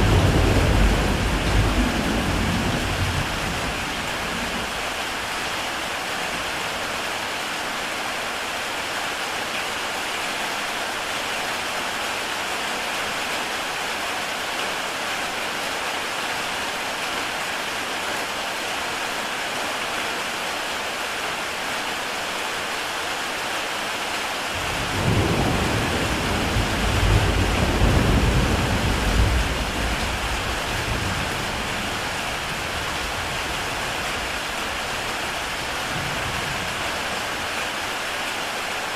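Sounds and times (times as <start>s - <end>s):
deep thunder roll: 0.0s - 4.7s
heavy rain on a tile roof: 0.0s - 38.9s.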